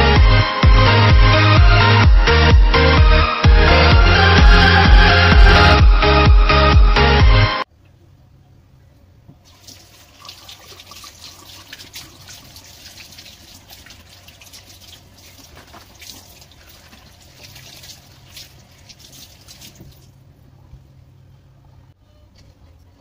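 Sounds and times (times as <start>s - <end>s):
tap water splashing on beans: 9.3s - 20.1s.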